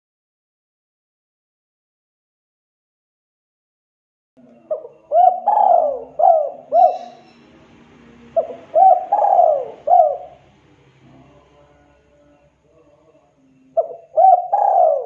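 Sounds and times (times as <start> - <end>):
dove cooing: 4.4 - 11.4, 13.7 - 15.0.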